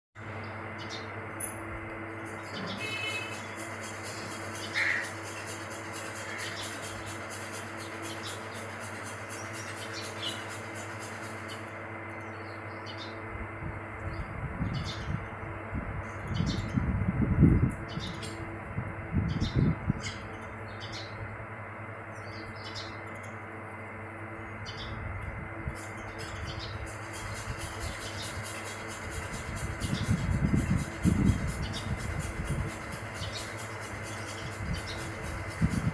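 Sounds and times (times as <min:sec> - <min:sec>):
birds chirping: 0:00.2 - 0:13.3, 0:17.5 - 0:18.5, 0:19.2 - 0:21.3, 0:21.9 - 0:25.1, 0:25.7 - 0:35.9
steady low hum: 0:00.2 - 0:35.9.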